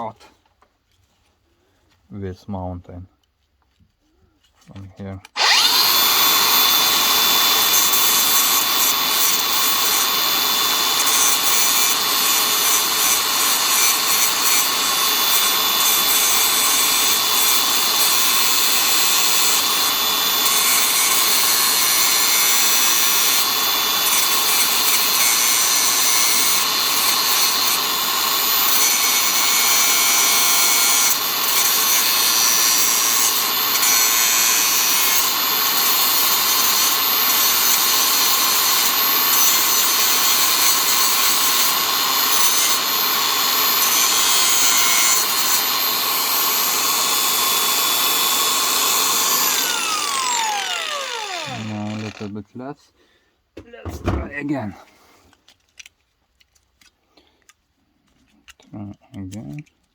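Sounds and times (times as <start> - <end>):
handheld grinder grinding: 5.2 - 52.4.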